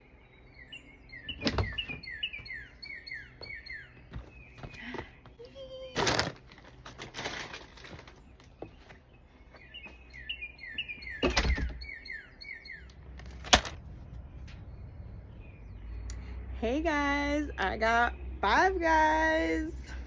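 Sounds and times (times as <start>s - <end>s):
birds chirping: 0.0s - 20.0s
outdoor background noise: 0.0s - 20.0s
handling thumps and rustles: 6.0s - 9.0s.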